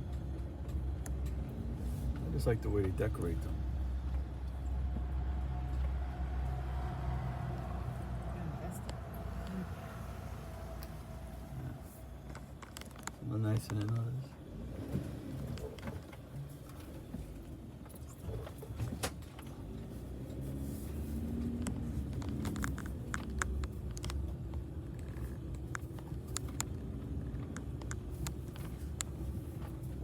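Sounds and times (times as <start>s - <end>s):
vehicle rumbling slowly: 0.0s - 30.0s
light clicks and rattles: 12.2s - 19.8s, 21.3s - 30.0s.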